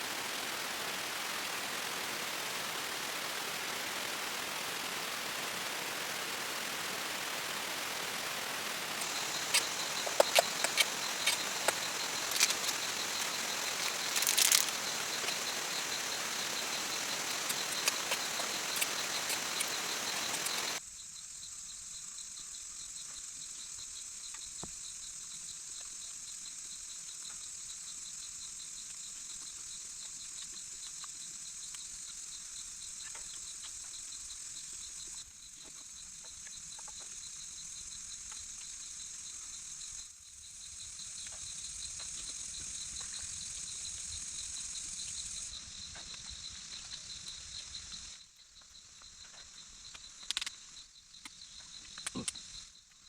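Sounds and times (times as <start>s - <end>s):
insects trilling: 0.0s - 53.0s
faint ticks: 9.0s - 20.8s, 28.7s - 37.3s, 44.8s - 53.0s.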